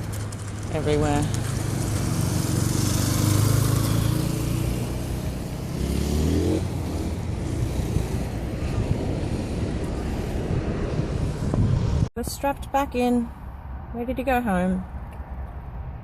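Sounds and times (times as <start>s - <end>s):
vehicle engine hum: 0.0s - 16.0s
vehicle accelerating past: 1.3s - 12.1s.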